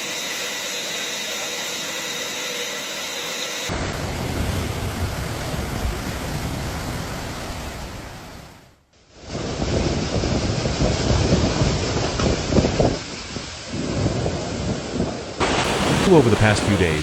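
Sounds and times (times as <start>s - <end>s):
surging water: 3.7s - 8.7s, 15.4s - 17.0s
strong wind: 3.7s - 17.0s.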